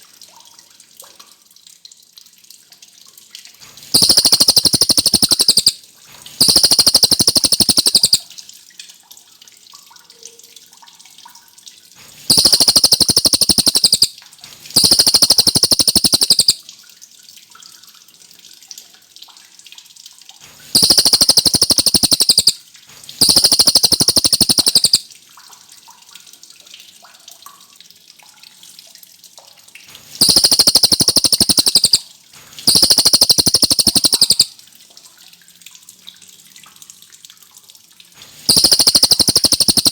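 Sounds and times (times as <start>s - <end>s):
songbird rattling trills: 3.9s - 5.8s, 6.4s - 8.2s, 12.3s - 14.1s, 14.8s - 16.6s, 20.7s - 22.6s, 23.2s - 25.1s, 30.2s - 32.0s, 32.6s - 34.5s, 38.5s - 39.9s
faint steady hiss: 3.9s - 8.3s, 12.2s - 14.1s, 14.7s - 16.6s, 20.6s - 25.1s, 30.1s - 34.6s, 38.3s - 39.9s.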